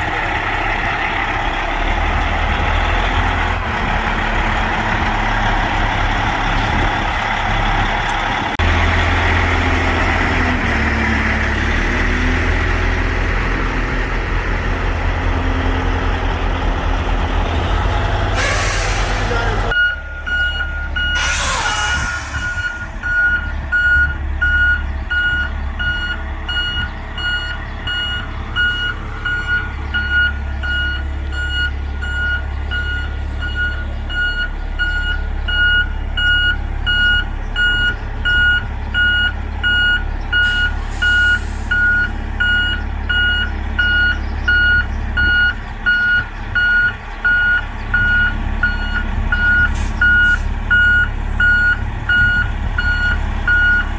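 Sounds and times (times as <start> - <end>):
engine rumble: 0.0 - 53.9
truck backup alarm beeping: 0.0 - 53.9
short hisses: 18.3 - 19.4.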